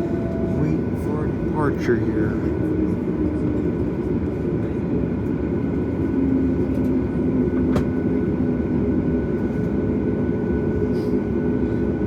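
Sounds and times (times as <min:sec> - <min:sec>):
airplane cabin engine noise: 0:00.0 - 0:12.0.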